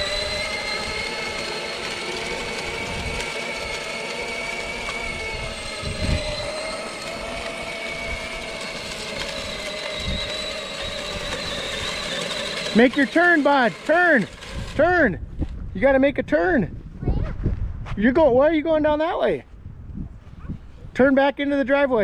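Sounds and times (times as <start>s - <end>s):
electric toy motors whining: 0.0s - 15.1s.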